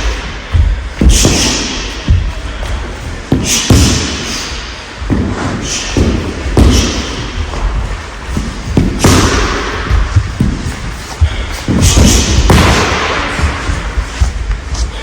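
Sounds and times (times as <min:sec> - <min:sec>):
punches and kicks thudding on mat: 0:00.1 - 0:02.5, 0:05.1 - 0:14.4.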